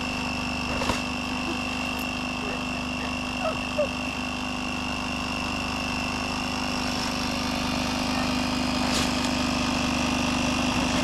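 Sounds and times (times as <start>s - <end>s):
motor humming with high whine: 0.0s - 11.0s.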